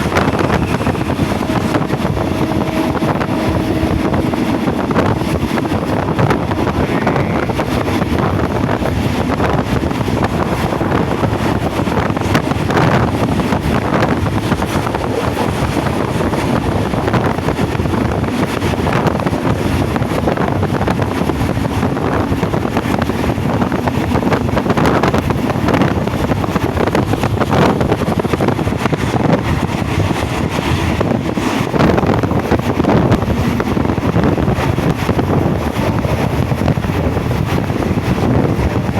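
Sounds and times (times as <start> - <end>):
train carriage rumbling: 0.0 - 38.9
wind noise on microphone: 0.0 - 38.9.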